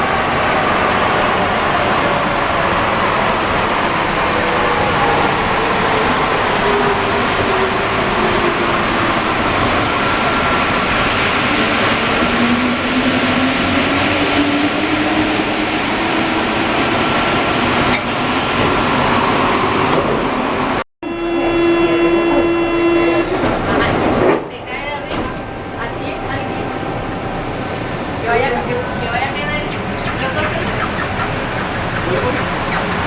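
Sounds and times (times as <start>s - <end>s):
metro train rumble and motor whine: 0.0s - 33.0s
steady pitched tone: 21.0s - 23.4s.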